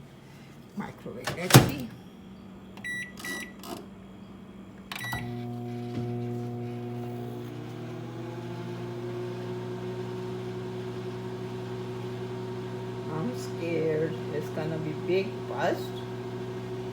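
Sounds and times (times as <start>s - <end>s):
microwave keypad beeping: 2.8s - 3.6s, 5.0s - 5.4s
microwave oven humming: 4.9s - 16.9s.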